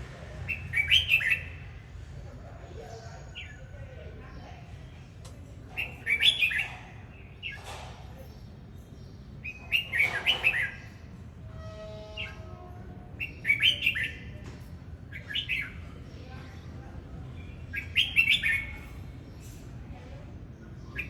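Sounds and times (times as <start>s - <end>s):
bulbul singing: 17.4s - 19.5s.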